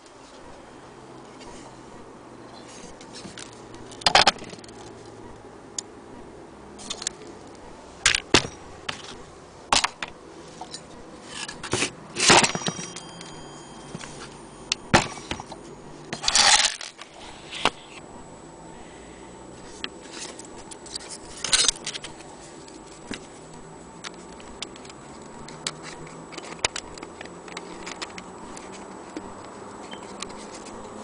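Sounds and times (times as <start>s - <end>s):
hard objects clicking and knocking: 8.1s - 14.1s
hard objects rattling and scraping: 14.9s - 17.8s.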